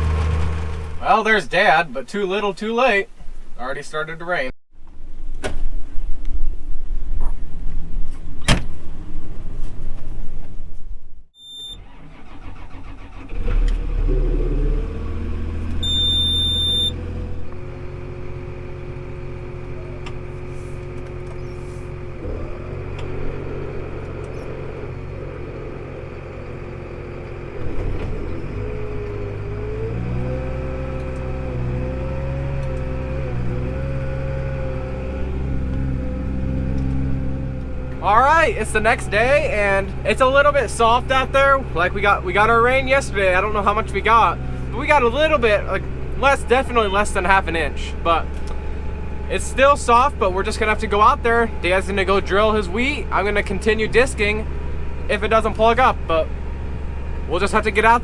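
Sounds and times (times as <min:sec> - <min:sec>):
loud noisy rush: 0:00.0 - 0:01.5
tractor engine running: 0:00.0 - 0:03.3, 0:11.8 - 0:58.0
short high beeps: 0:15.8 - 0:17.0.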